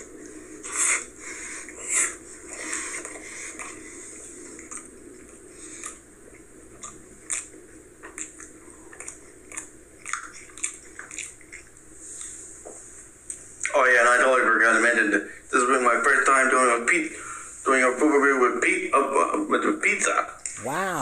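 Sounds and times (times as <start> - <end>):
man chewing with wet smacking: 4.6 - 12.4.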